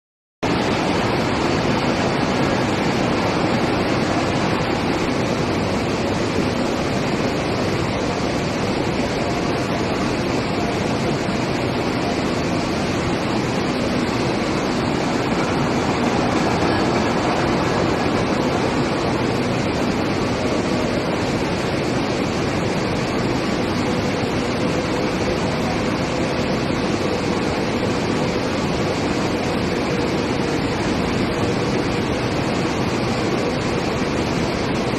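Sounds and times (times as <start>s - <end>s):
industrial machinery rushing: 11.8s - 21.5s.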